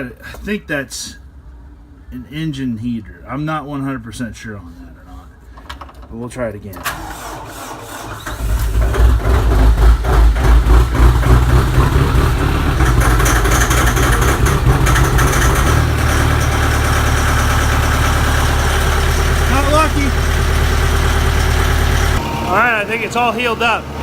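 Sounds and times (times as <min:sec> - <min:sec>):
tractor engine starting and idling: 0:06.7 - 0:24.0.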